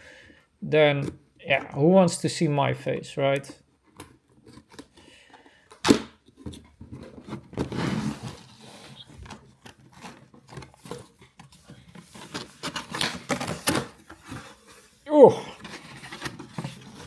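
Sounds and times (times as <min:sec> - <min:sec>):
cardboard scraping rustle: 0:06.4 - 0:17.0.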